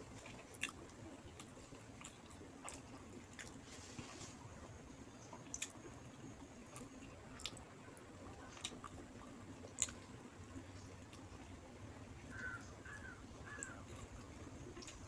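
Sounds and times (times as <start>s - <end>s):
person chewing food: 0.0s - 4.2s, 5.4s - 5.8s, 6.7s - 7.7s, 8.4s - 10.1s, 12.4s - 15.0s.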